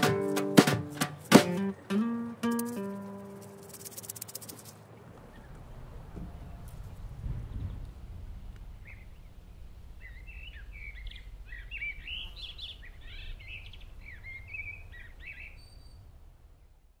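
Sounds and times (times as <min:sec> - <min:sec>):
songbirds chirping: 0:01.2 - 0:17.0
low outdoor rumble: 0:04.6 - 0:17.0.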